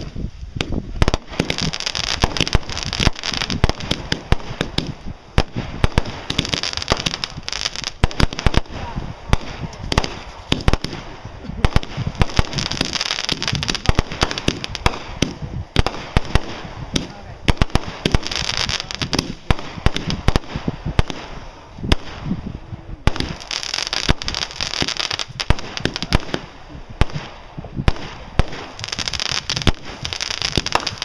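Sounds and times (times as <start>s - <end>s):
fireworks fizzing crackle: 0.0s - 31.0s
fireworks popping: 0.0s - 31.0s.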